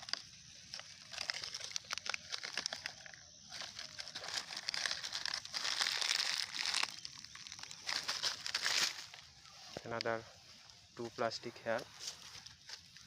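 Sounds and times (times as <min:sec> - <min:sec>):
plastic litter crinkling: 0:00.0 - 0:10.1.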